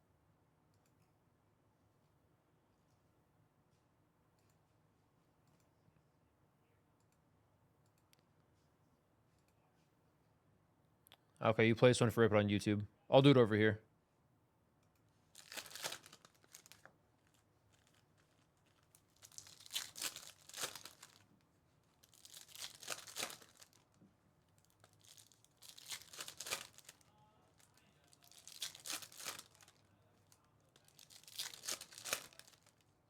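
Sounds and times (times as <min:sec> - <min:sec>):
card wrappers tearing and crinkling: 0:15.4 - 0:16.9, 0:17.7 - 0:21.2, 0:22.0 - 0:23.9, 0:24.6 - 0:27.0, 0:27.6 - 0:29.8, 0:30.8 - 0:32.8.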